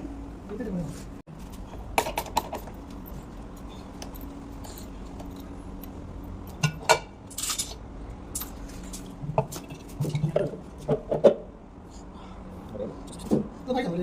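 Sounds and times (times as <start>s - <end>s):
steady low hum: 0.0s - 14.0s
metal objects clinking: 4.1s - 9.0s.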